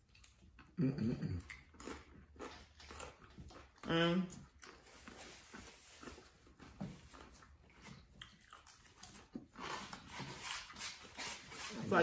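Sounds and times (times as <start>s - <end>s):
chewing crunchy chips: 0.1s - 11.7s.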